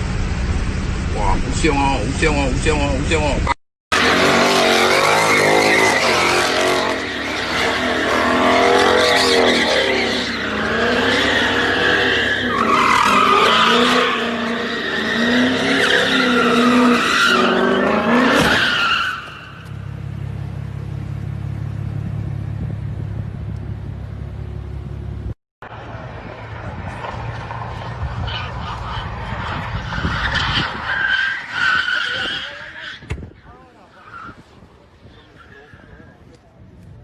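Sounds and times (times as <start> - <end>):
low engine drone: 0.0 - 3.4
car engine revving: 0.0 - 33.1
tyres squealing: 4.0 - 19.7, 27.8 - 36.2.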